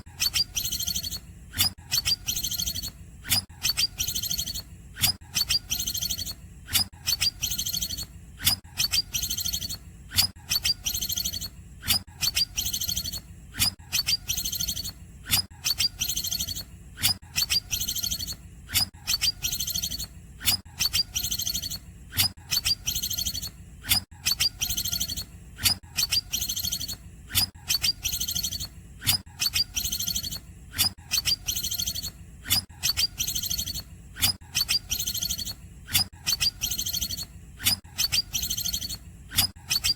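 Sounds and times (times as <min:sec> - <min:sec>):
bird singing high phrase: 0:00.2 - 0:01.2, 0:01.9 - 0:03.0, 0:03.6 - 0:04.6, 0:19.1 - 0:20.1, 0:31.1 - 0:32.2, 0:32.8 - 0:33.8, 0:34.6 - 0:35.6.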